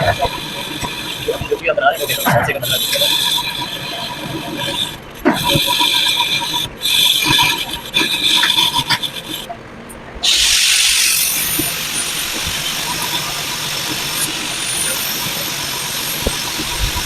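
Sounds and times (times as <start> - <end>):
metal rasping and scraping: 0.0 - 9.5
loud steady hiss: 10.2 - 17.0.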